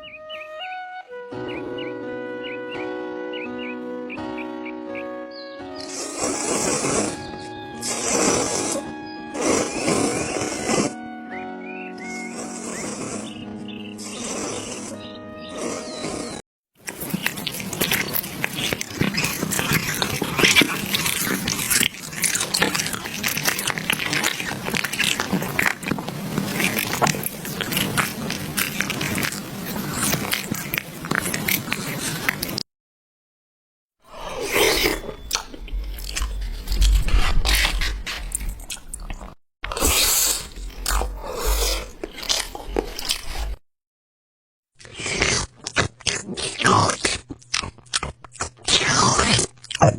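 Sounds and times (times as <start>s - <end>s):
cat crunching food: 16.8s - 32.6s, 34.4s - 43.6s, 44.8s - 49.9s.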